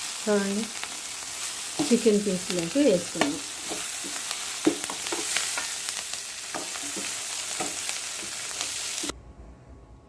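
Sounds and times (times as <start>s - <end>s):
food sizzling in a pan: 0.0s - 9.1s
spoon scraping a pan: 3.1s - 5.8s.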